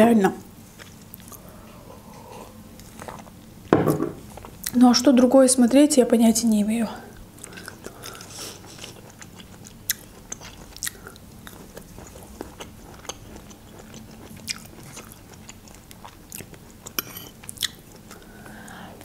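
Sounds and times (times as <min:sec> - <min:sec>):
person chewing with wet clicks: 0:00.7 - 0:01.5, 0:02.1 - 0:03.7, 0:04.3 - 0:04.8, 0:07.1 - 0:18.8.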